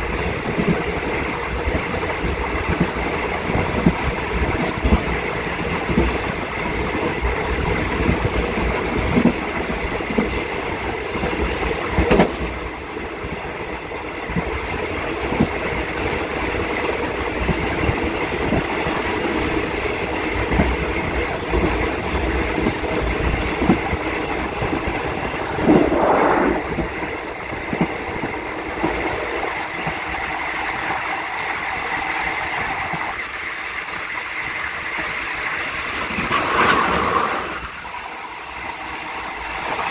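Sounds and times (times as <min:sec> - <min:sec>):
train carriage rumbling on rails: 0:00.0 - 0:39.9.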